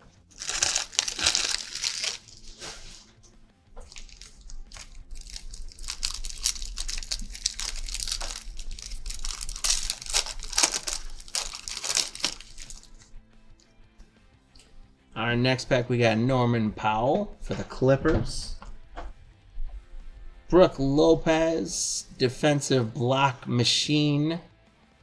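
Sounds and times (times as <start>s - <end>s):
wrapper tearing and crinkling: 0.0s - 13.2s.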